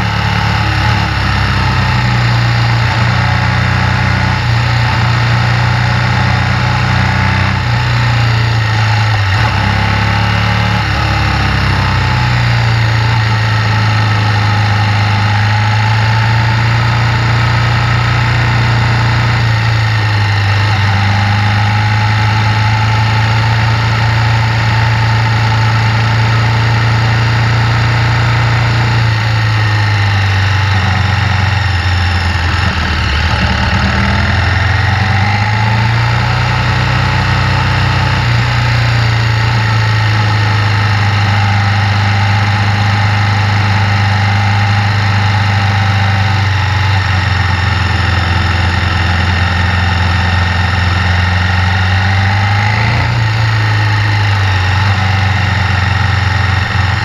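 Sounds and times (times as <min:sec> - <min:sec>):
motorcycle engine droning: 0:00.0 - 0:57.0.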